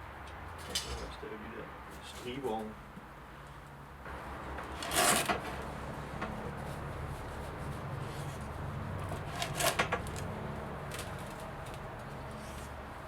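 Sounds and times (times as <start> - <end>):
insulation wool rasping scrapes: 4.7 - 5.6, 9.0 - 9.9.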